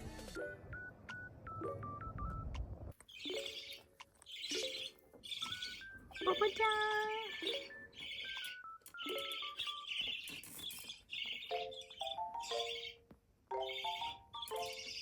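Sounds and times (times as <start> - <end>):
background music with stepped notes: 0.0 - 2.7, 11.2 - 15.0
budgerigar chattering chirps: 3.1 - 13.0.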